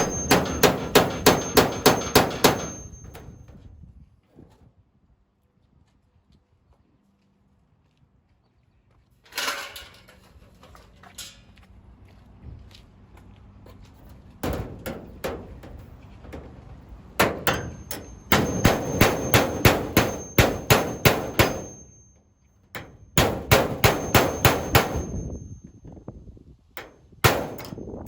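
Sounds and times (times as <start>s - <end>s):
hammer striking: 0.0s - 3.4s, 17.2s - 22.2s, 22.8s - 25.7s, 26.8s - 28.0s.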